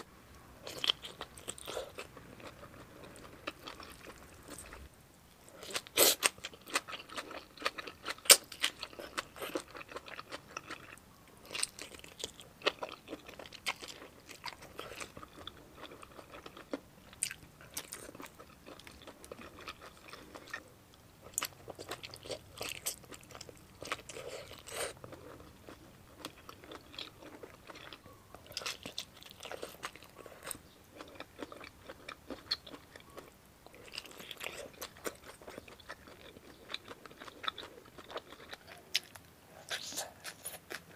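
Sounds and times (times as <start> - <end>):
crunchy eating: 0.6 - 4.9, 5.5 - 40.9
wet chewing: 21.2 - 40.9.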